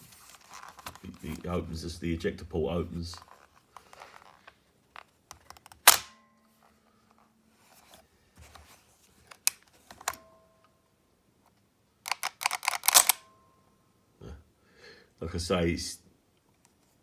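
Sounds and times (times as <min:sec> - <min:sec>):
gun cocking handle snapping: 0:05.8 - 0:06.2, 0:12.1 - 0:13.2.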